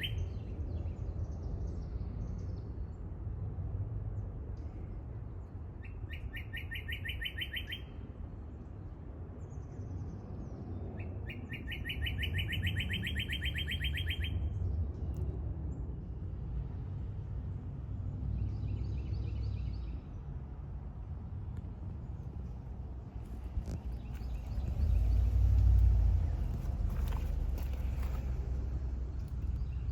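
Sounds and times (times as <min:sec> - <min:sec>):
songbird trilling: 0:00.0 - 0:00.5, 0:05.8 - 0:08.0, 0:11.0 - 0:14.6
faint bird calls: 0:05.8 - 0:08.0, 0:11.0 - 0:14.6
steady low rumble: 0:14.0 - 0:29.9.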